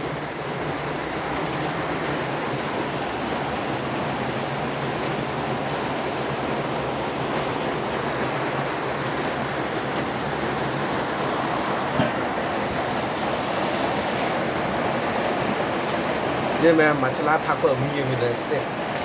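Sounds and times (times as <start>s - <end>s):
noodles cooking with rushing hiss: 0.0s - 19.0s.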